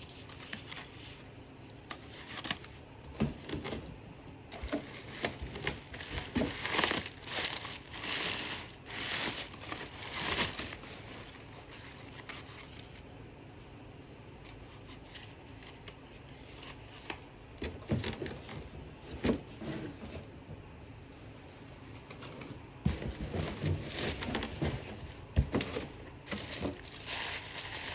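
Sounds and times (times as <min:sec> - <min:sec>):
packing material crinkling: 0:04.5 - 0:12.9, 0:22.9 - 0:27.9.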